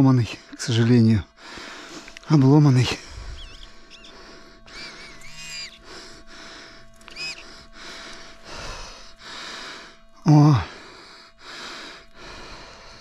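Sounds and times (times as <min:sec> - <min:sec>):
bird whistling: 0:03.1 - 0:05.8, 0:07.1 - 0:07.6.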